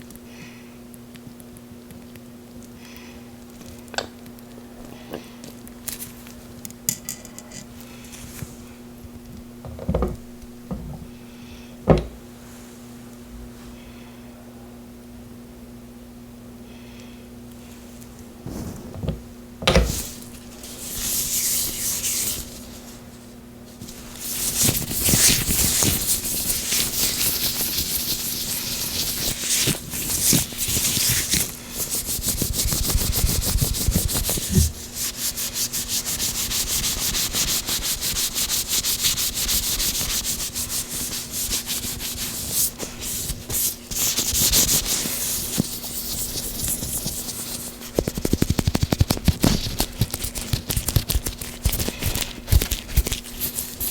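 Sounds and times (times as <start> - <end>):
oily gloved hands rubbing: 19.9 - 23.0, 23.8 - 53.9.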